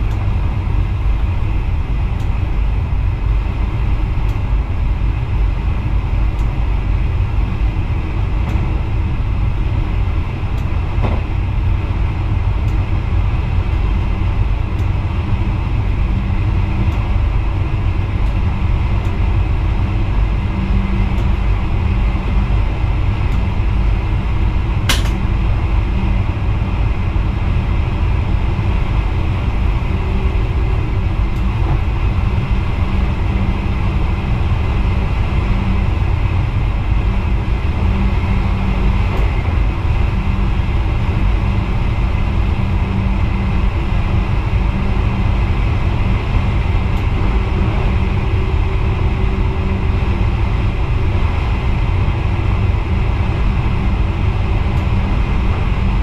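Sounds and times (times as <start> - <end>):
train running rumble and hum: 0.0 - 56.0
sharp click: 24.9 - 25.2.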